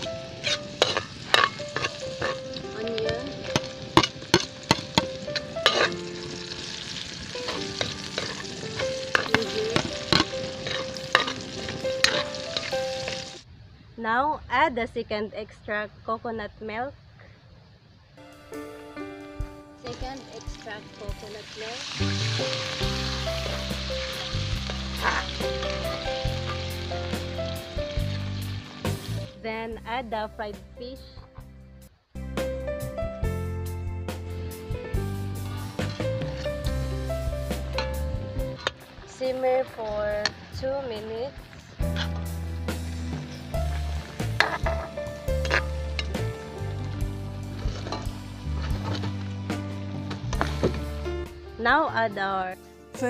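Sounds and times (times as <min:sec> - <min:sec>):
metal ladle scraping and clinking wok: 0:00.0 - 0:02.8, 0:03.4 - 0:13.4, 0:21.8 - 0:26.9, 0:44.1 - 0:46.2
background music: 0:00.0 - 0:13.4, 0:18.2 - 0:53.0
vegetables sizzling in hot oil: 0:00.0 - 0:13.4, 0:19.9 - 0:29.3, 0:35.4 - 0:49.2.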